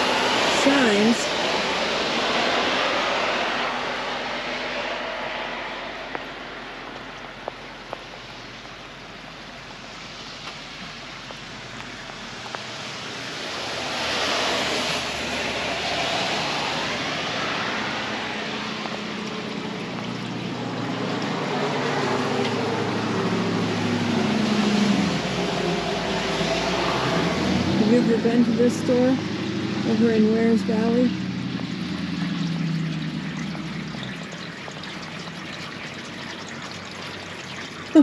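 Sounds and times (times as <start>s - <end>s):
tyre hiss on wet road: 0.0s - 19.8s
low engine sound: 0.0s - 38.0s.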